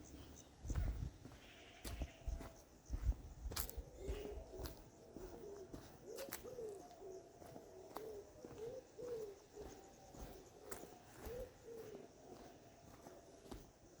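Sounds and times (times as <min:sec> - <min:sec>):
dove cooing: 0:03.8 - 0:12.4.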